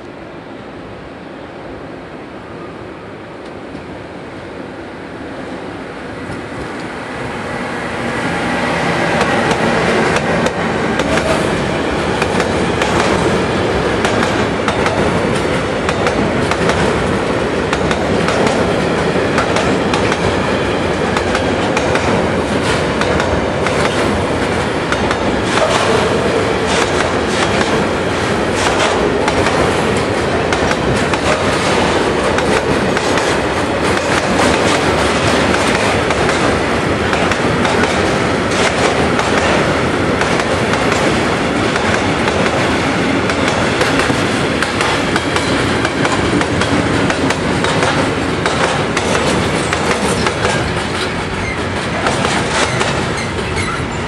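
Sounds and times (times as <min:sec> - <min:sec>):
freight train passing: 0:00.0 - 0:54.0
wheels clicking over rail joints: 0:09.2 - 0:54.0
faint wheel squeal: 0:53.2 - 0:54.0.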